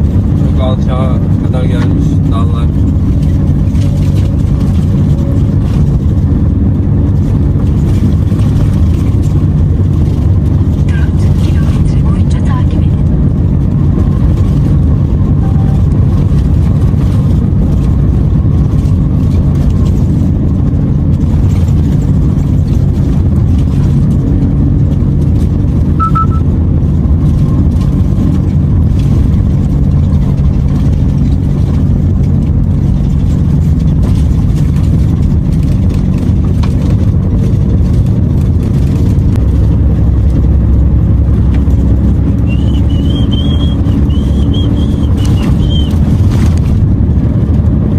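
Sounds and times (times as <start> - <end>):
truck diesel engine running: 0.0 - 47.9
tyre and road noise: 0.0 - 47.9.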